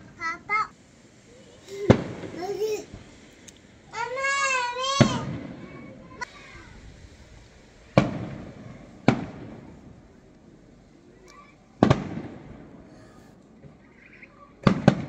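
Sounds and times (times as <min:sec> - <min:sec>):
firework shells bursting: 0:01.8 - 0:03.8, 0:07.8 - 0:10.6, 0:11.8 - 0:13.9, 0:14.6 - 0:15.0
rolling echo: 0:07.9 - 0:10.6, 0:11.8 - 0:14.0.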